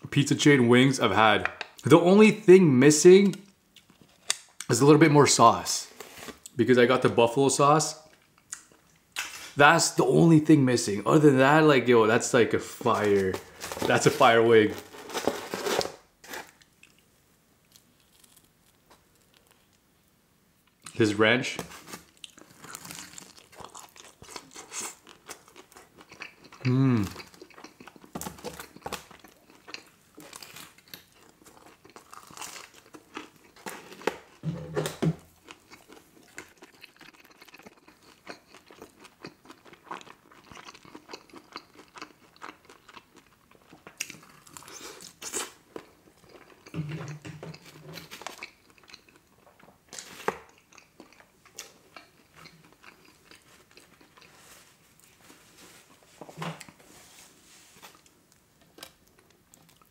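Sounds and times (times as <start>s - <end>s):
chewing and crunching food: 21.9s - 34.4s, 35.3s - 56.8s, 57.8s - 59.9s.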